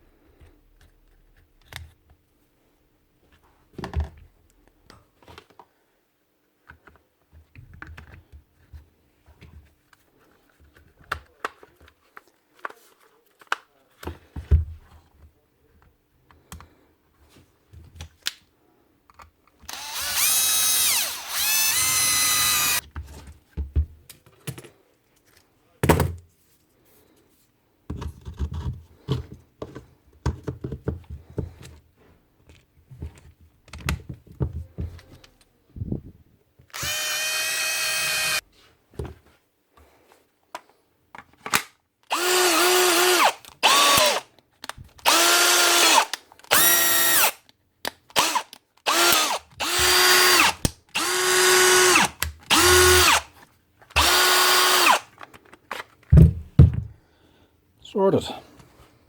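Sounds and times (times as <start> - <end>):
cordless drill whirring: 19.6 - 22.8, 36.7 - 38.4, 42.1 - 44.2, 45.0 - 47.4, 48.1 - 53.3, 54.0 - 55.1.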